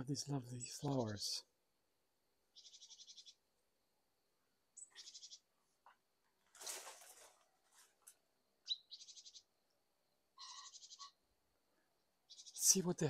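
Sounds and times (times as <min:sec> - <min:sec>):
brief rustle: 0:06.3 - 0:08.2.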